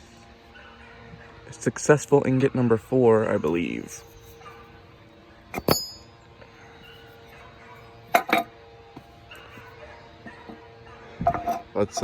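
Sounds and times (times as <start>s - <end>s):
metal clinking: 5.5s - 6.2s, 8.1s - 8.5s.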